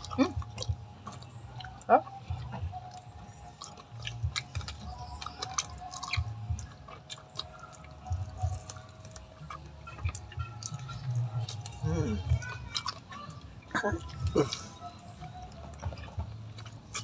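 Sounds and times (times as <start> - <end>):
wet mouth clicks and smacks: 0.0 - 13.4
person chewing food: 0.0 - 17.0.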